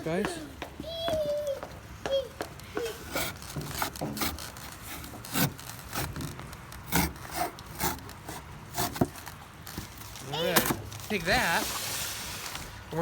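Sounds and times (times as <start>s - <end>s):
knife sawing: 2.9s - 9.4s.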